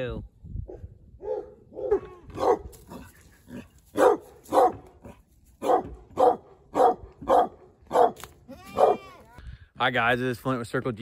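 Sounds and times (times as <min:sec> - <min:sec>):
dog barking: 0:00.7 - 0:02.7, 0:04.0 - 0:09.1.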